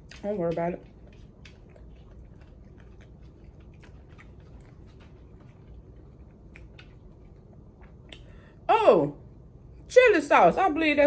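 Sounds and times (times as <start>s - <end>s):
person chewing: 0.0s - 8.6s
low steady hum: 0.0s - 11.0s
wet mouth clicks: 6.5s - 8.4s.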